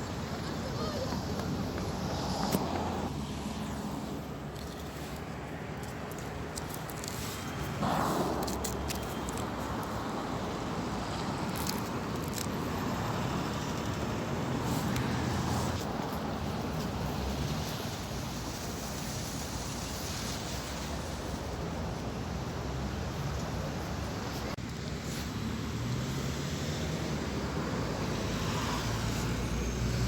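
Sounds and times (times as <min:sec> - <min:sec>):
outdoor rumble and hiss: 0:00.0 - 0:30.0.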